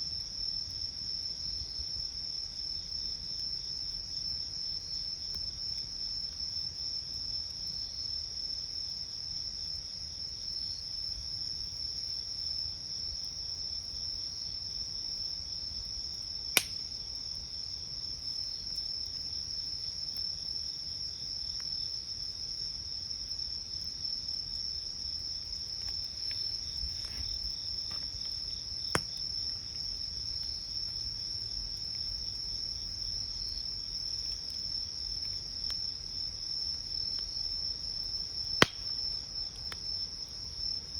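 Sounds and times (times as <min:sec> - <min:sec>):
crickets trilling: 0:00.0 - 0:40.9
insect chirps pulsing: 0:02.8 - 0:40.9
wood fire popping: 0:16.5 - 0:17.3, 0:25.4 - 0:32.2, 0:38.1 - 0:39.8.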